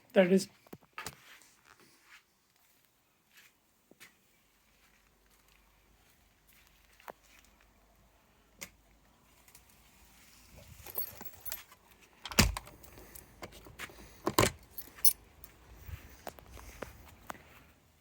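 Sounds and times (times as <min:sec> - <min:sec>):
metallic jingling and rattling: 0:10.5 - 0:11.8, 0:12.4 - 0:16.7.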